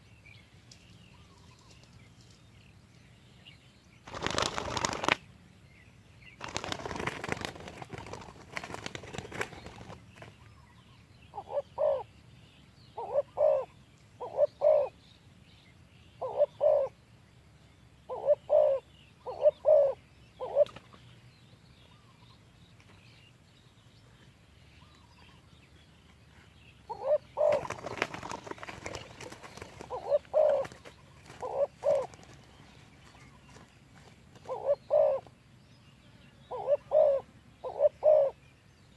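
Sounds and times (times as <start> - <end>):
dove cooing: 11.3 - 12.1, 13.0 - 15.0, 16.2 - 17.0, 18.1 - 20.8, 26.9 - 32.5, 34.3 - 35.3, 36.5 - 38.4.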